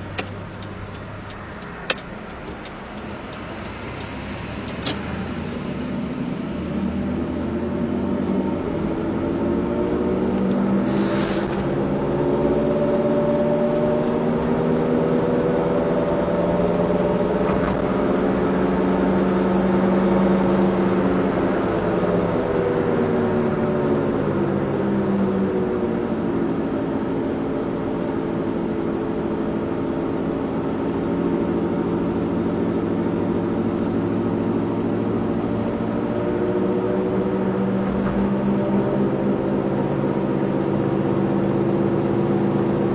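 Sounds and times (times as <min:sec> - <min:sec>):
car engine accelerating: 0:00.0 - 0:42.9
short hiss: 0:10.8 - 0:11.7.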